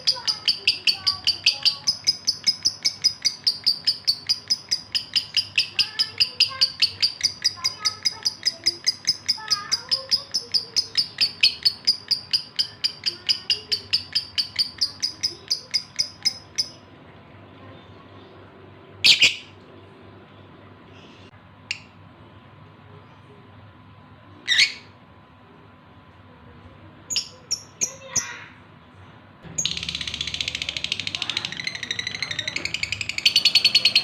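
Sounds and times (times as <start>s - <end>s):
lovebird high chirps: 0.0s - 16.9s, 19.0s - 19.5s, 27.1s - 28.4s, 29.6s - 34.0s.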